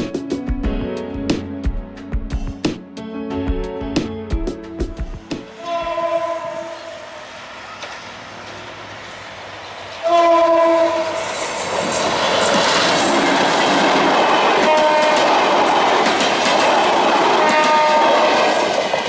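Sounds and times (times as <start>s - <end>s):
train horn blast: 5.4s - 7.4s, 10.0s - 11.4s, 14.6s - 15.4s, 17.4s - 18.6s
coaches clattering over rail joints: 11.4s - 19.0s.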